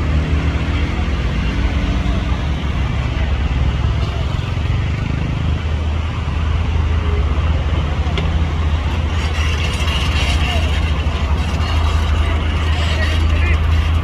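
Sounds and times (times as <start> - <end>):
low engine rumble: 5.4 - 14.0.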